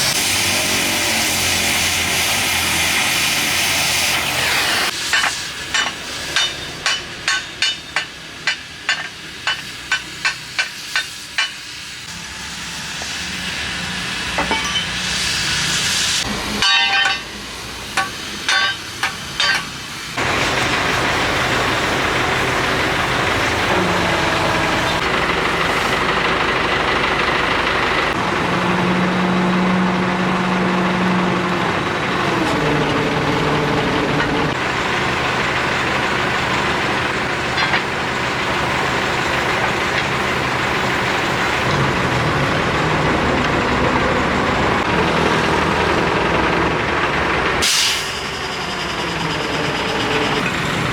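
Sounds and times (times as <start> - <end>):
heavy diesel machinery running: 0.0 - 50.9
sharp metallic clanks: 5.1 - 11.8, 14.4 - 15.4, 16.5 - 19.8.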